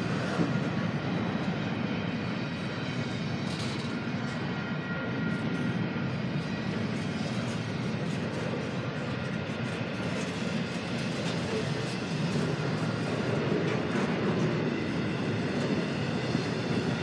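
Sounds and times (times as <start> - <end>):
steel wheels on rails: 3.4 - 4.4, 6.7 - 17.0.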